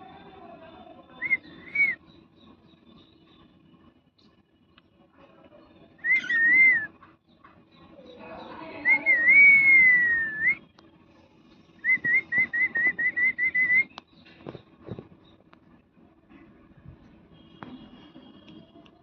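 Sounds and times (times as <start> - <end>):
parrot whistling: 6.0 - 6.9.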